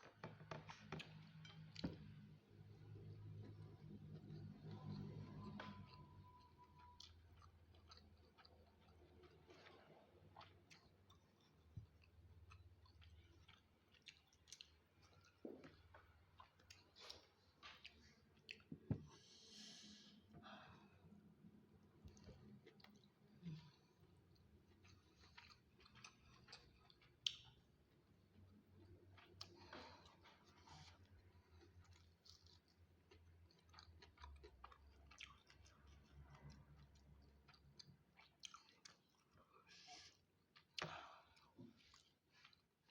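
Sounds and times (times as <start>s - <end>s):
chewing food: 0.0s - 19.2s, 22.0s - 42.9s
low steady hum: 1.4s - 33.7s
chewing mouth clicks: 24.8s - 27.6s.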